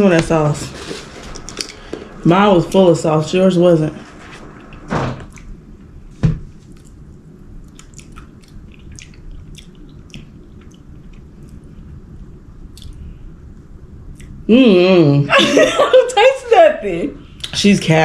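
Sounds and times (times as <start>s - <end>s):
chewing and mouth smacks: 6.6s - 13.0s, 14.1s - 14.4s.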